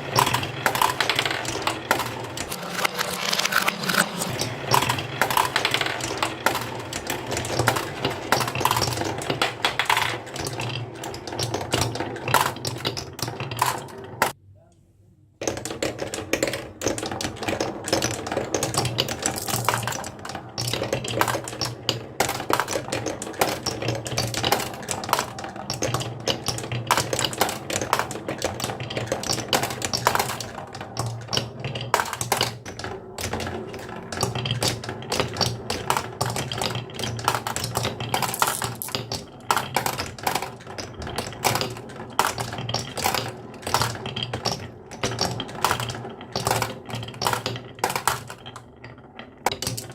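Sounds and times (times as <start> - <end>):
marbles clacking on wooden run: 0.0 - 14.4, 15.4 - 49.9.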